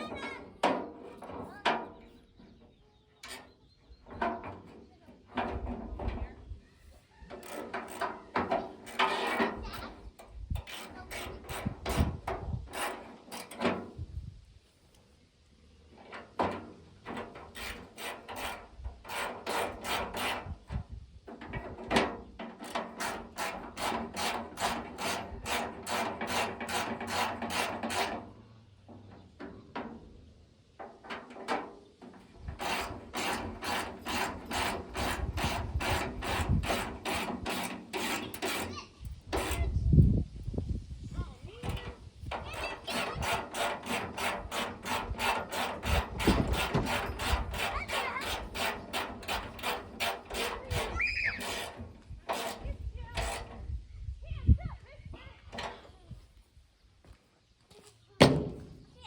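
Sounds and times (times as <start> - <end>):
hand tool scraping strokes: 6.9 - 13.9, 16.0 - 20.8, 21.6 - 28.3, 31.3 - 39.8, 41.6 - 53.7.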